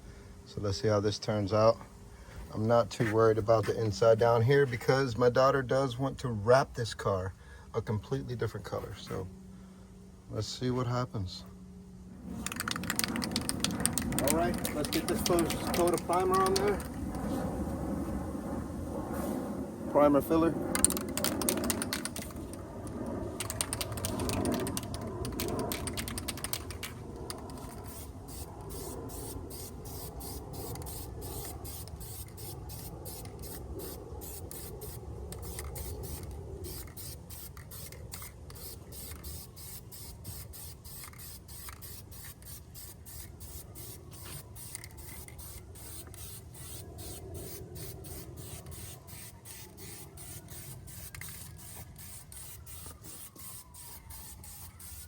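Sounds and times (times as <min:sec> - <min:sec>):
aerosol can spraying: 0:12.4 - 0:17.4, 0:20.8 - 0:22.6, 0:23.4 - 0:55.0.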